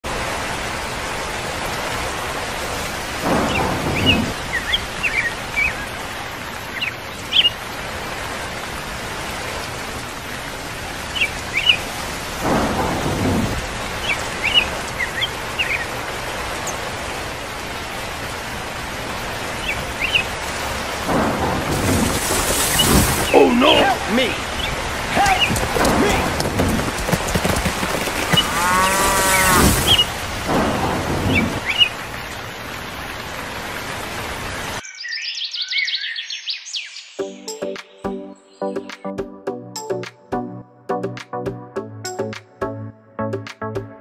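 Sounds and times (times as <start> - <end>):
steady rain: 0.0 - 34.8
thunder rolling: 3.2 - 4.6, 12.4 - 15.0, 20.6 - 32.1
bird chirps: 34.8 - 37.4.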